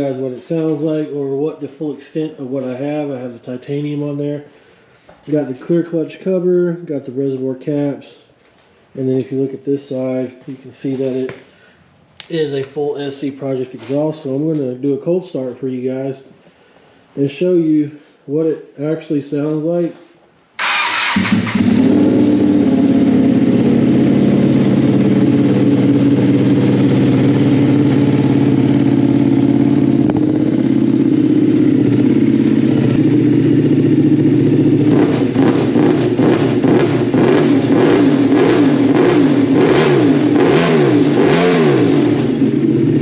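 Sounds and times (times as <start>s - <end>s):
motorcycle engine idling: 20.6s - 39.6s, 42.2s - 43.0s
motorcycle engine revving: 20.6s - 43.0s.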